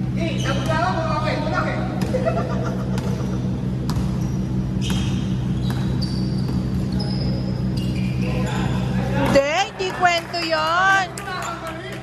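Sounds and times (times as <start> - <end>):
steady low hum: 0.0 - 12.0
shoe squeaks: 0.2 - 1.1, 3.1 - 9.0
basketball bouncing on court floor: 1.9 - 6.9.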